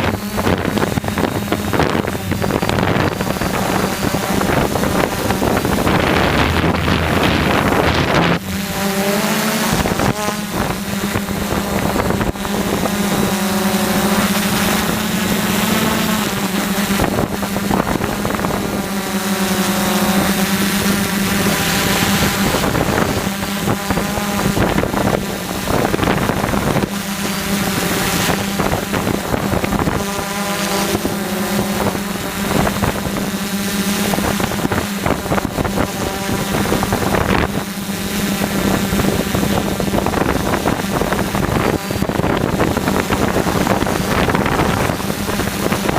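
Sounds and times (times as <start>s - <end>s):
wind rushing: 0.0s - 12.2s
quadcopter propellers buzzing: 0.0s - 45.9s.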